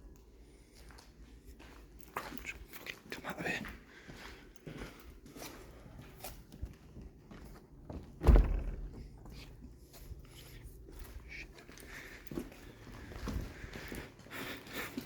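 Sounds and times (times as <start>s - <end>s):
footsteps: 0.2s - 15.0s
heavy low thump: 8.2s - 9.2s.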